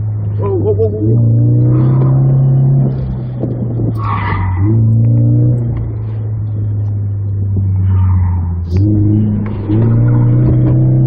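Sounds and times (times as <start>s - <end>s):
car engine under hard throttle: 0.0s - 11.0s.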